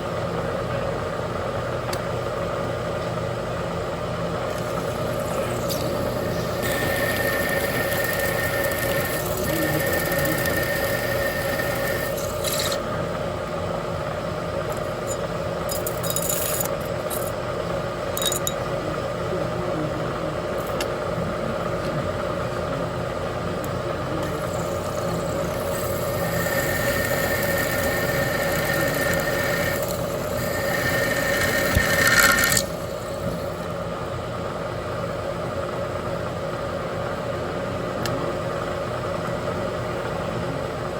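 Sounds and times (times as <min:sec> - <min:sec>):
machine spindle hum: 0:00.0 - 0:40.9
drill scraping metal: 0:04.5 - 0:12.8, 0:24.2 - 0:33.6.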